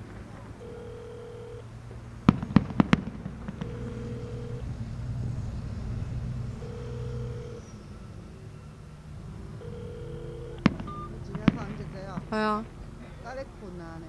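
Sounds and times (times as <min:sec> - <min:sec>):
fireworks bangs: 0:01.9 - 0:06.8, 0:10.6 - 0:13.5
faint fireworks pops: 0:02.2 - 0:03.9, 0:10.6 - 0:12.7.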